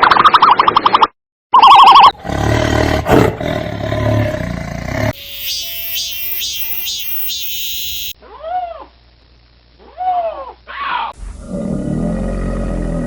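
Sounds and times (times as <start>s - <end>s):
big cat roaring: 2.2s - 5.1s, 11.2s - 13.0s
high-pitched pulses: 5.2s - 8.2s
steady tones: 5.2s - 8.2s.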